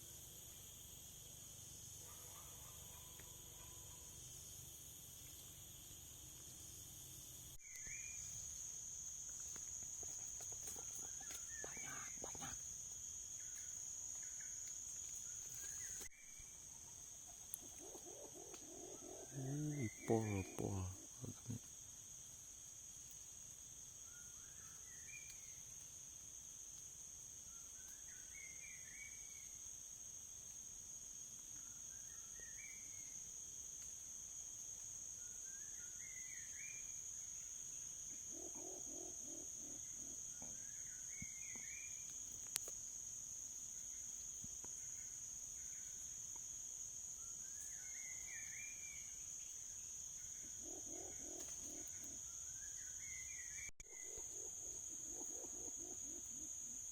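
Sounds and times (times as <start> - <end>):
insects droning: 0.0 - 56.9
lower animal call: 17.6 - 21.4, 53.9 - 56.9.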